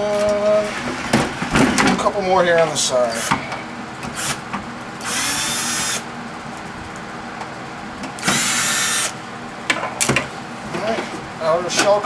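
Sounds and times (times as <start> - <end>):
power drill removing screws: 4.1 - 4.4, 5.0 - 6.1, 8.2 - 9.2.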